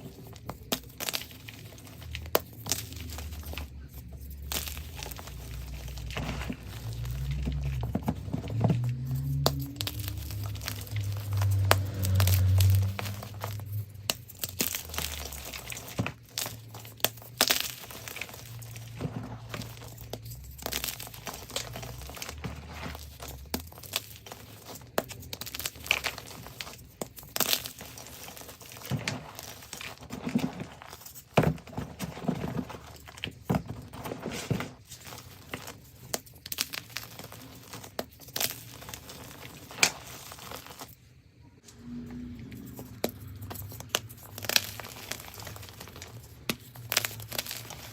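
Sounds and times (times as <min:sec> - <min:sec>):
chalk crushed by hand: 0:42.6 - 0:47.9.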